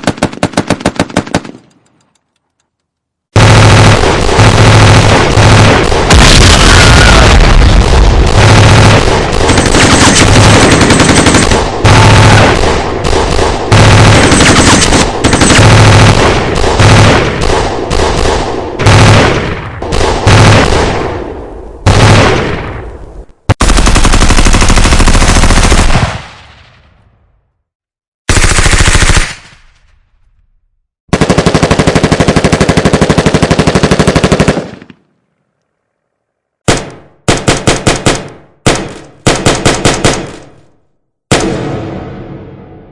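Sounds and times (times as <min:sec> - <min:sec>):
machine-gun fire: 0:00.0 - 0:01.6, 0:03.4 - 0:22.7, 0:23.6 - 0:26.4, 0:28.3 - 0:29.6, 0:31.1 - 0:34.9, 0:36.7 - 0:40.6, 0:41.3 - 0:42.8
single gunshots: 0:03.4 - 0:23.0, 0:41.3 - 0:42.9.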